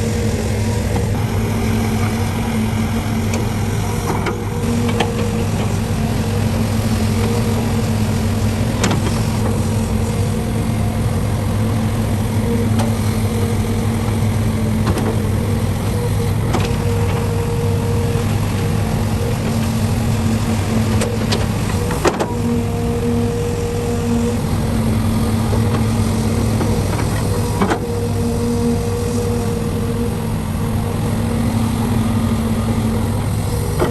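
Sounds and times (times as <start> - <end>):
diesel machinery running: 0.0 - 33.9.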